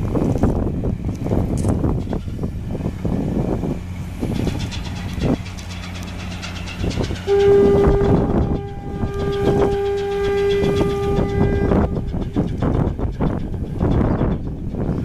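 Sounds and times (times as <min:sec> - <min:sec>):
ship's horn blast: 0:06.9 - 0:12.8.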